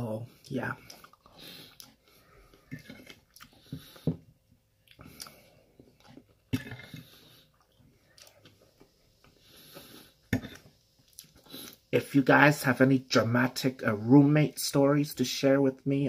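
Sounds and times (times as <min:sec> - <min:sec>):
person chewing food: 0:00.3 - 0:11.9.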